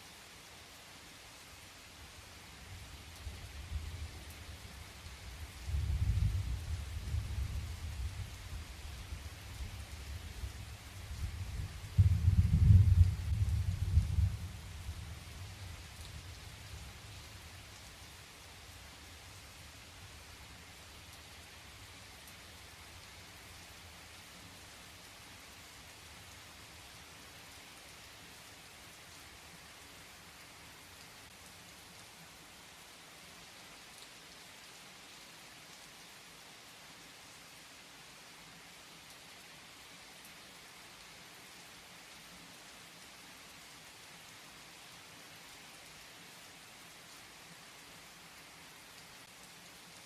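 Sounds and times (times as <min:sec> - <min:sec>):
faint rain falling: 0:00.0 - 0:50.0
raindrops pattering: 0:02.6 - 0:23.8.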